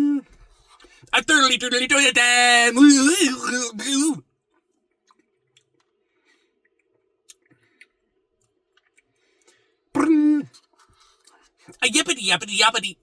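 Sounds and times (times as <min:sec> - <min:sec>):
mouth clicks and eating: 0:04.5 - 0:06.0, 0:06.6 - 0:11.8.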